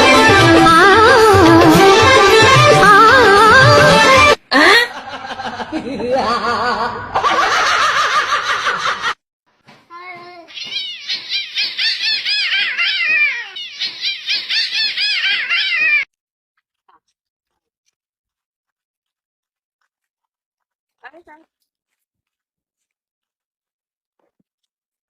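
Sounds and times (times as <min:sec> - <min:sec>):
cat meowing: 0:10.1 - 0:16.1.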